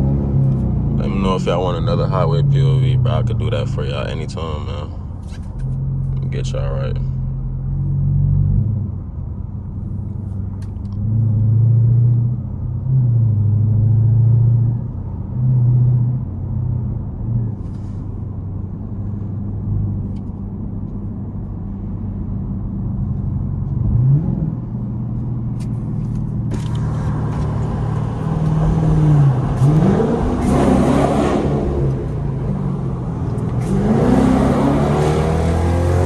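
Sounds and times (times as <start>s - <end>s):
car exhaust droning: 0.0s - 9.0s.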